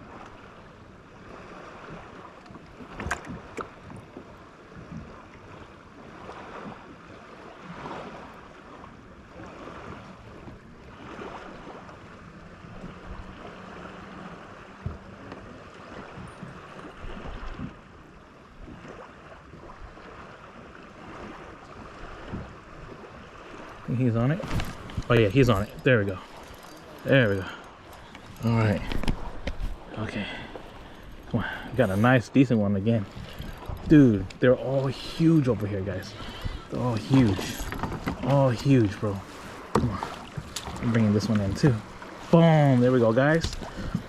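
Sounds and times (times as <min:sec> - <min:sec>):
waves lapping against hull: 0:00.0 - 0:44.0
wind on microphone: 0:22.0 - 0:25.9.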